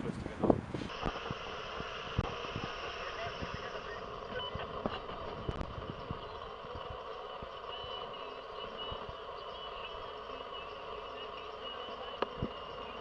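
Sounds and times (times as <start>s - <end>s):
outdoor vehicle noise: 0.0s - 13.0s
short high-pitched beeps: 3.1s - 6.7s.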